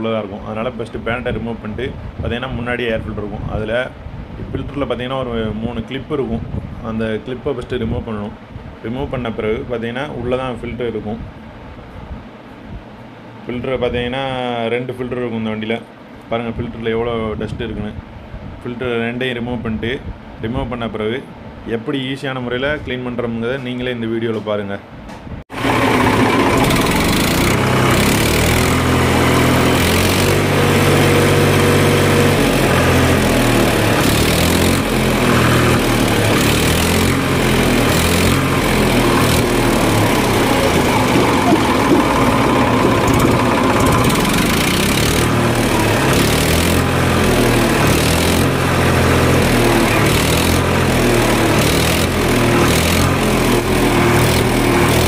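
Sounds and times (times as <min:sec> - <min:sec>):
engine running: 0:25.5 - 0:55.0.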